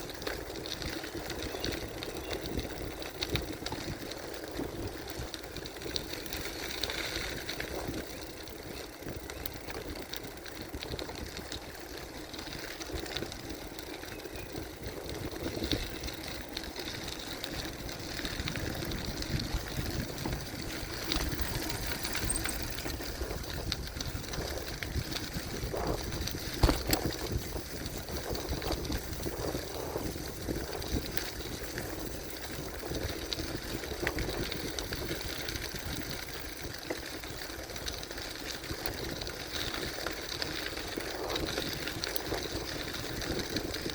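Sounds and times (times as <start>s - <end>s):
bike rattling: 0.0s - 43.9s
tyre rumble: 18.3s - 23.8s.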